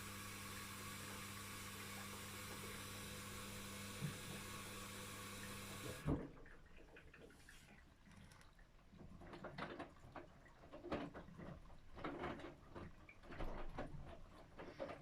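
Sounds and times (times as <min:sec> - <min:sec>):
soft swishing of wet laundry: 0:06.7 - 0:08.0.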